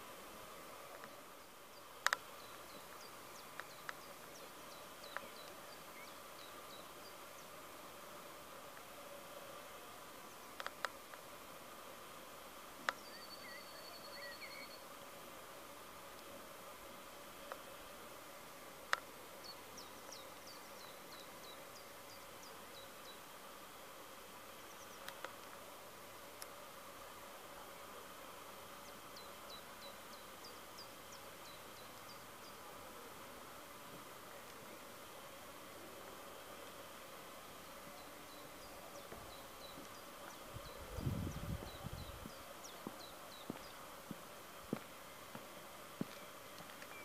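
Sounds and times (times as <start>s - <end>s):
faint steady hum: 0.0s - 47.0s
small birds chirping: 0.5s - 7.6s, 12.8s - 14.9s, 18.9s - 23.4s, 24.5s - 25.4s, 28.7s - 32.8s, 37.4s - 44.2s, 45.9s - 47.0s
bird singing faintly: 12.9s - 14.9s.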